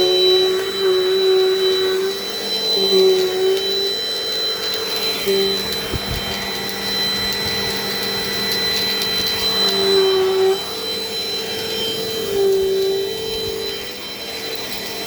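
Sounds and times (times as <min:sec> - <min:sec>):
vacuum cleaner whining: 0:00.0 - 0:15.0
small clicks: 0:04.6 - 0:10.0.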